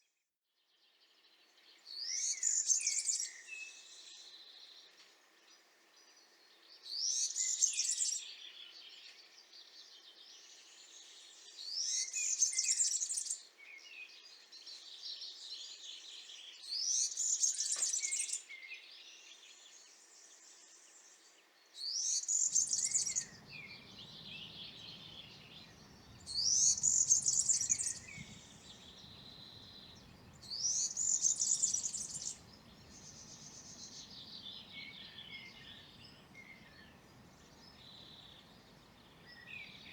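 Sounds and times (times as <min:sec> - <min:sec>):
small bird singing jingling phrases: 0:22.1 - 0:39.9.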